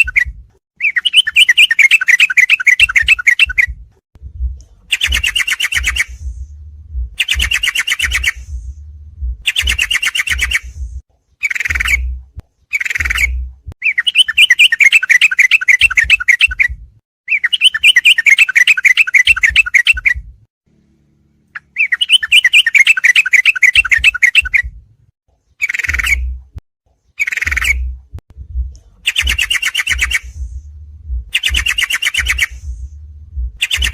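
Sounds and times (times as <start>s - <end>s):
bulbul bird chatter: 0.0s - 3.7s, 4.9s - 6.3s, 7.2s - 8.6s, 9.4s - 10.8s, 11.4s - 20.2s, 21.6s - 24.7s, 25.5s - 26.3s, 27.1s - 27.9s, 29.0s - 30.6s, 31.3s - 32.8s, 33.6s - 33.9s.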